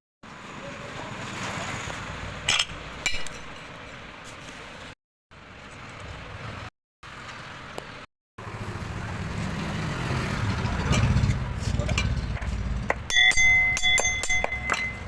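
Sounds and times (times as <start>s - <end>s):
sharp metallic clinks: 13.1s - 15.0s.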